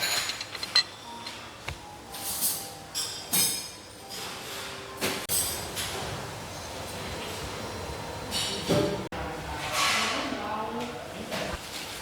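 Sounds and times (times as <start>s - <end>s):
dishes and cutlery clinking: 0.0s - 7.4s.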